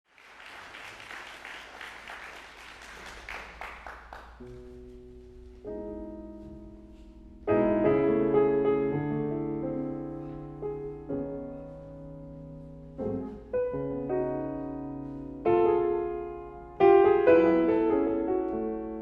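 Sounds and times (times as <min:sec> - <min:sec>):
audience applause: 0:00.0 - 0:04.8
piano chords: 0:03.4 - 0:19.0.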